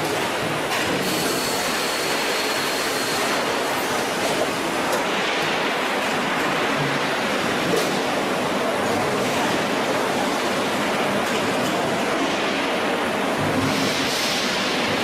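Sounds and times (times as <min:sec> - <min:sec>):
factory machinery hissing: 0:01.0 - 0:04.0.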